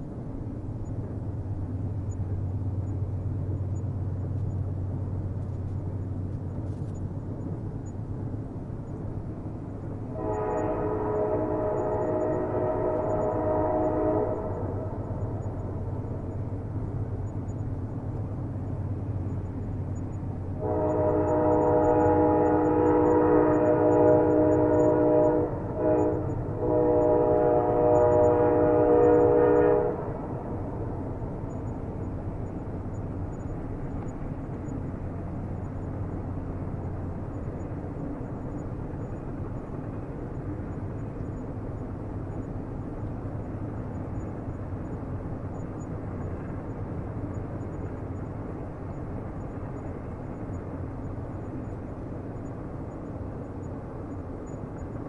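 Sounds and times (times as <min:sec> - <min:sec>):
train rumbling: 0:00.0 - 0:55.0
train horn blasts: 0:10.1 - 0:16.2, 0:20.6 - 0:32.1.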